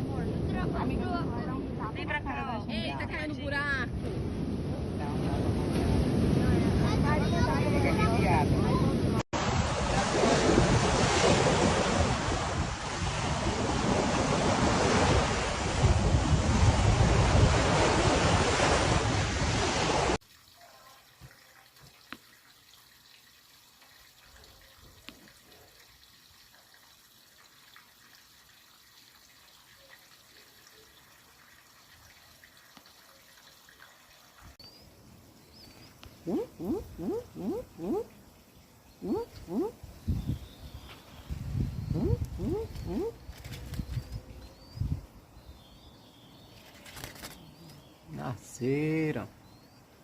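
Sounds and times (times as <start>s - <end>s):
rain and wind storm: 3.9s - 20.2s.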